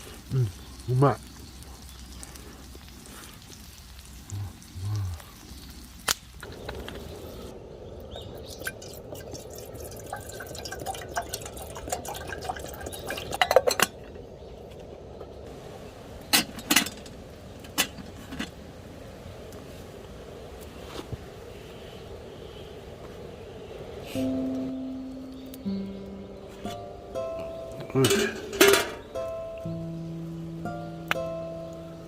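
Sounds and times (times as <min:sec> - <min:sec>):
utensils clinking on metal tin: 0:27.9 - 0:29.1.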